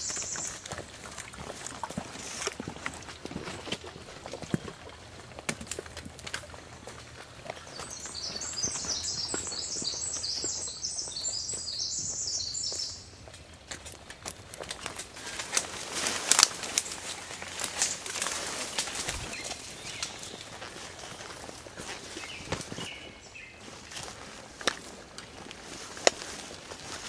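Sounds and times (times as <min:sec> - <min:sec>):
songbird singing: 0:00.0 - 0:01.0, 0:07.4 - 0:15.4, 0:16.2 - 0:24.4
footsteps in undergrowth: 0:00.0 - 0:27.0
leaves and brush rustling: 0:00.0 - 0:27.0.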